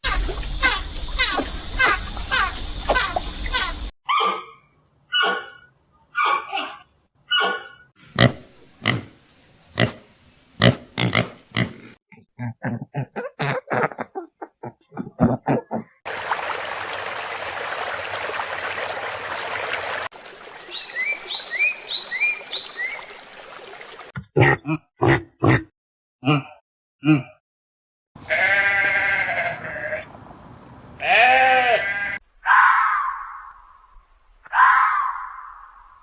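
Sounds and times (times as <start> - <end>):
pig grunts: 24.4 - 27.4.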